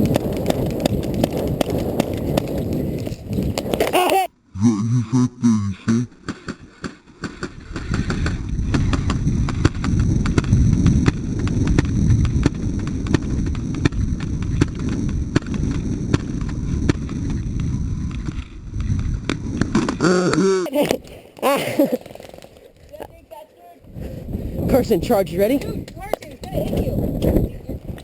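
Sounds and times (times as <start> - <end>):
person speaking: 3.9 - 4.3, 20.6 - 22.0.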